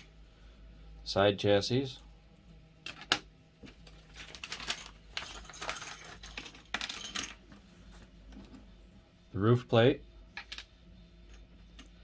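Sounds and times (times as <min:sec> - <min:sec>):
plastic parts rattling: 0:03.8 - 0:07.6.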